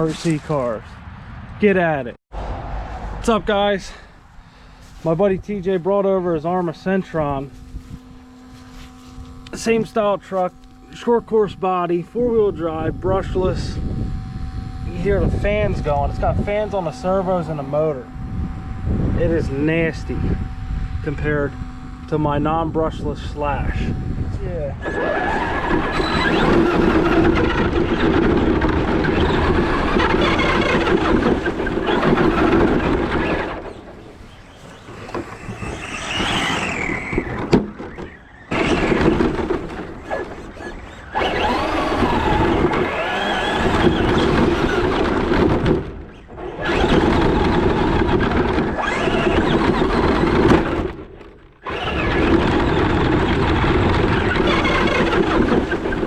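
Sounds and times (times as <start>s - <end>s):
electric motor whining: 4.4s - 56.0s
running gear and tyres: 25.1s - 56.0s.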